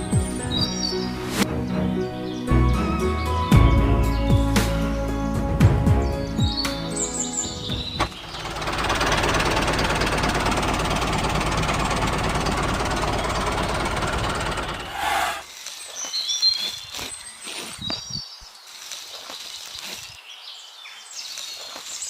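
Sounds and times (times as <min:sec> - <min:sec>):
birds chirping: 0:00.0 - 0:22.0
small motor machine rattling: 0:08.2 - 0:14.9.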